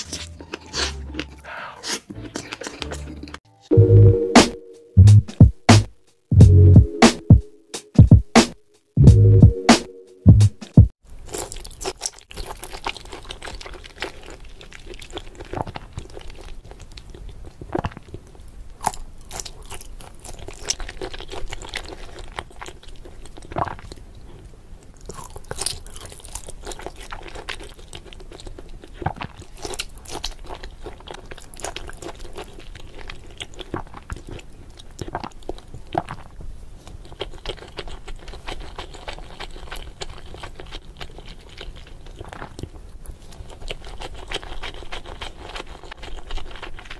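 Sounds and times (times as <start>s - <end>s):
person chewing shrimp: 0.0s - 3.4s, 11.2s - 46.9s.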